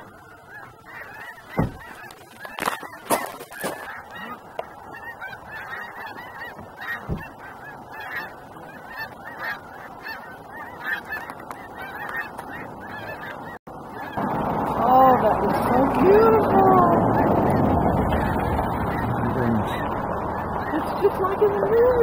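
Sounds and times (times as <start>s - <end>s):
flock of geese honking: 0.0s - 22.0s
sharp knocks: 1.6s - 1.9s.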